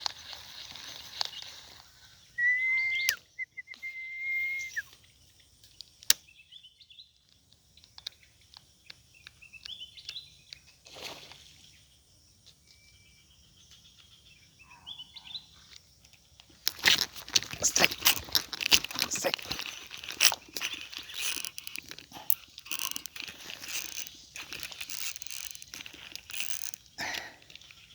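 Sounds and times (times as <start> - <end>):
short clicks: 2.4 - 4.8
bird whistling: 2.4 - 4.9
bird chirps: 2.4 - 5.4, 12.7 - 15.6.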